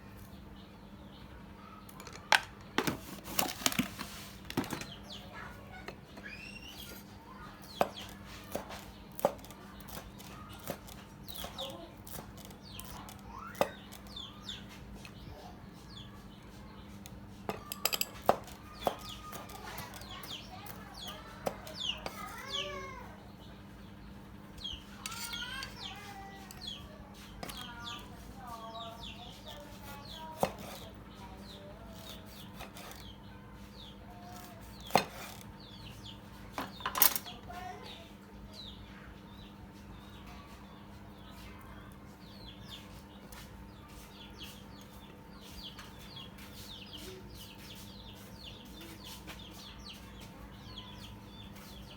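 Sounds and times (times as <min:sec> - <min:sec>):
birds chirping: 0:00.0 - 0:51.9
rising and falling bird call: 0:06.2 - 0:06.9.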